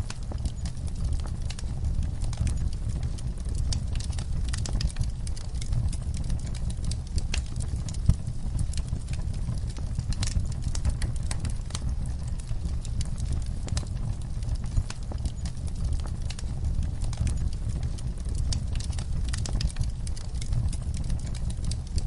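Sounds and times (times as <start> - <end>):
campfire crackling: 0.0 - 22.0
low rumble: 0.0 - 22.0.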